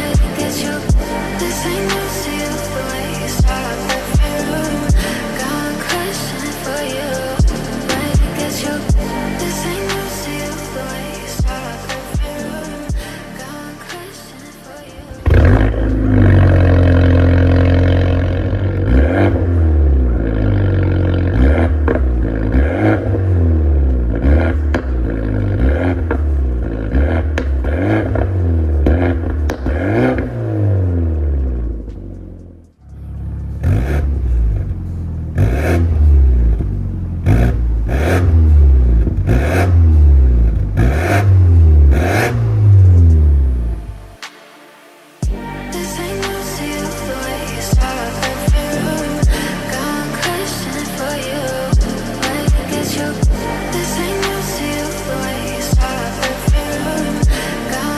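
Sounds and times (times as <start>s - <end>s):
car engine revving: 0.0s - 44.3s, 45.0s - 57.9s.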